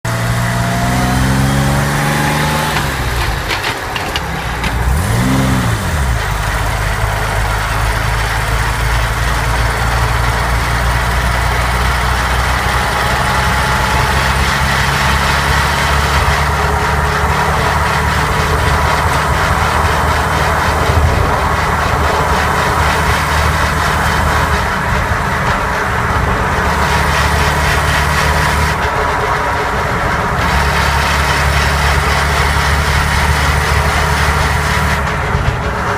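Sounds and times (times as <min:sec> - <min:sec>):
vehicle engine running: 0:00.0 - 0:35.9
gearbox whine: 0:00.1 - 0:35.9.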